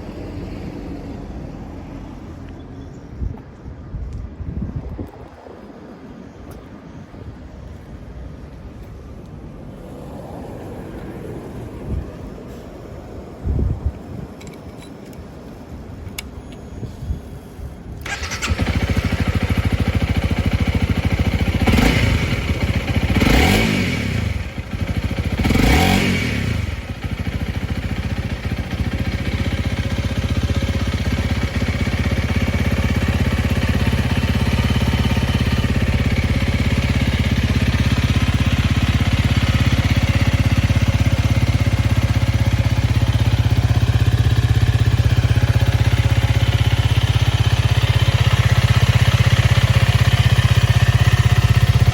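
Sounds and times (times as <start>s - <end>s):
motorcycle engine starting and revving: 18.0s - 51.9s.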